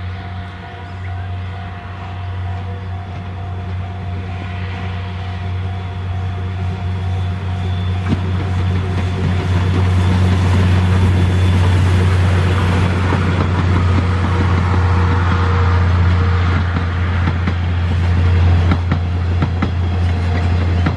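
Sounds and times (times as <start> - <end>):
steam train running past: 0.0 - 20.9
wheels clicking on rails: 7.6 - 20.9.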